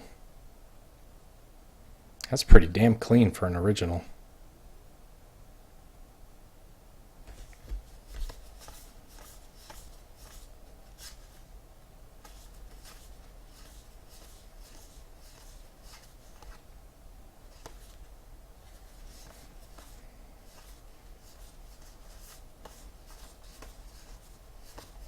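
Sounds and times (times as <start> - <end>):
cards swishing past each other: 7.3 - 11.4, 12.2 - 16.6, 17.5 - 18.1, 18.7 - 25.0.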